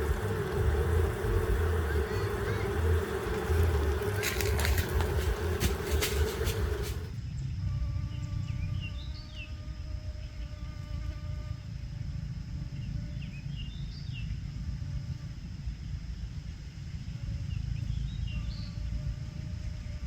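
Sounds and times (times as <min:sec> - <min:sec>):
loud rustling: 0:00.0 - 0:07.1
low rumble: 0:00.0 - 0:07.1
insect buzzing: 0:00.0 - 0:16.0, 0:16.7 - 0:20.0.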